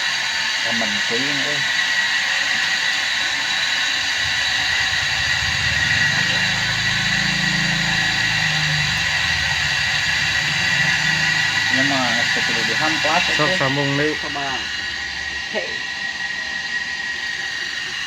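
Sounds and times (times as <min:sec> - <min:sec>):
machine high whine: 0:00.0 - 0:18.0
low rapid rattling hum: 0:02.8 - 0:18.0.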